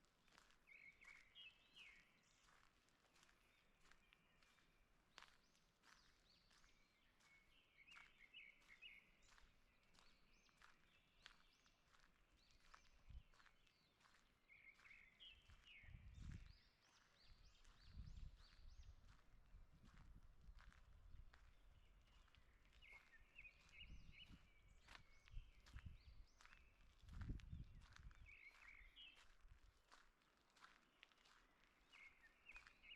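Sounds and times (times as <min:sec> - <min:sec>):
footsteps on forest path: 0:00.0 - 0:32.9
songbirds chirping: 0:00.0 - 0:32.9.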